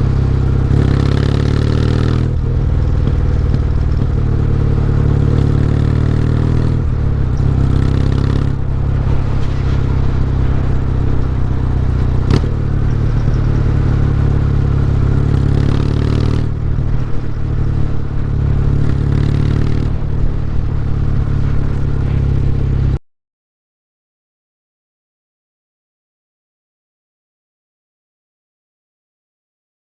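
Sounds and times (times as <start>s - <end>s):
motorcycle exhaust running: 0.0s - 23.0s.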